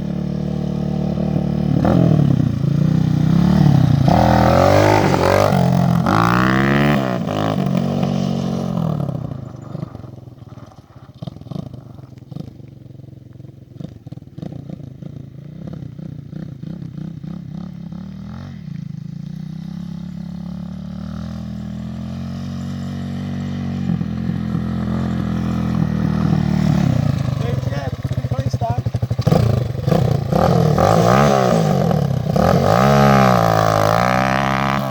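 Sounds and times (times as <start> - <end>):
dirt bike engine revving: 0.0 - 10.5, 13.8 - 34.9.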